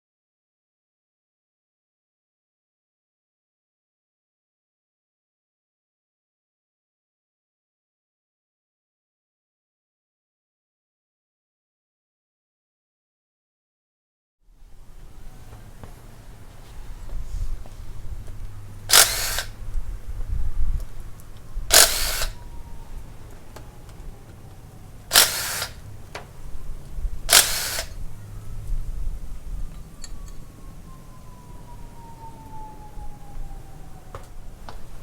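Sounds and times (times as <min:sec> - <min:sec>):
power tool bursts: 0:18.9 - 0:19.6, 0:21.7 - 0:22.4, 0:25.1 - 0:25.8, 0:27.3 - 0:28.0.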